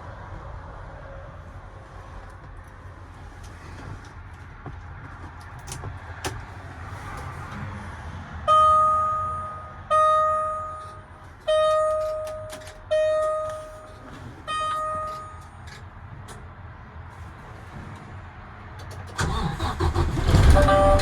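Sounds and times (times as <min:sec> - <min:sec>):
truck cab warning chime: 0:08.5 - 0:15.8, 0:19.2 - 0:21.0.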